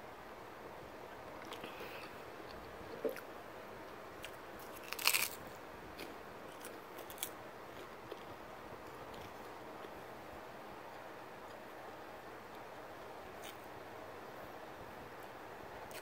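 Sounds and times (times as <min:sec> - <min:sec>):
crunchy rice cake chewing: 0:04.2 - 0:10.0, 0:13.4 - 0:13.7.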